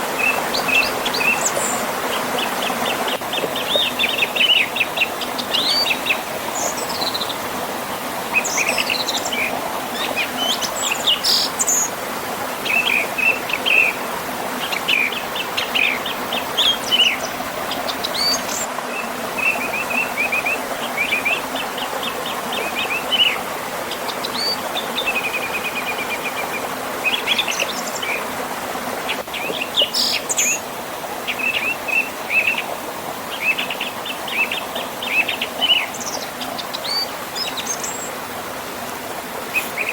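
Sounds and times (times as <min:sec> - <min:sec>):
river and small waterfall rushing: 0:00.0 - 0:39.9
birds chirping and trilling: 0:00.2 - 0:07.4, 0:14.6 - 0:28.3, 0:29.0 - 0:30.7, 0:31.3 - 0:38.2, 0:39.5 - 0:39.9.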